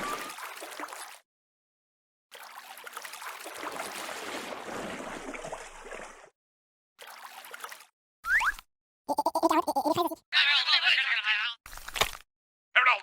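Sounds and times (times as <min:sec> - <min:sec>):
water gurgling and trickling: 0:00.0 - 0:01.2, 0:02.3 - 0:06.4, 0:07.0 - 0:08.4, 0:09.1 - 0:10.2.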